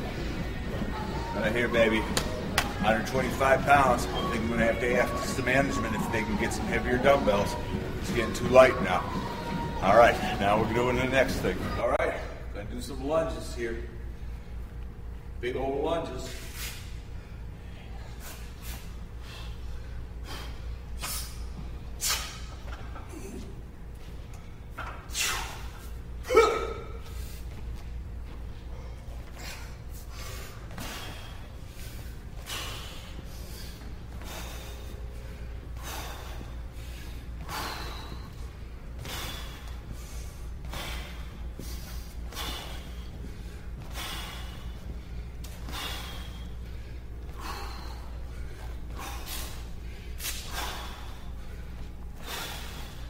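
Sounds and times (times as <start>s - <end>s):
steady low hum: 0.0s - 53.0s
man breathing hard: 16.3s - 22.3s, 28.6s - 53.0s.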